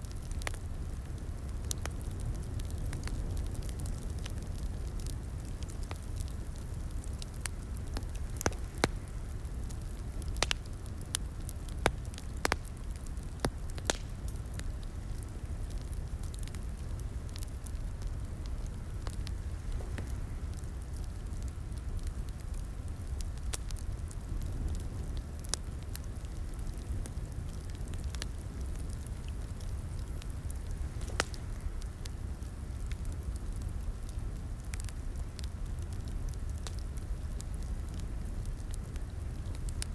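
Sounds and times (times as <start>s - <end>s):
fireplace crackling: 0.0s - 39.9s.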